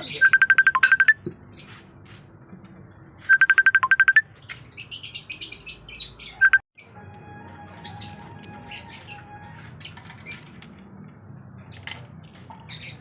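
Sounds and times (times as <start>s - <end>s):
mobile phone ringing: 0.2s - 1.2s, 3.3s - 4.3s.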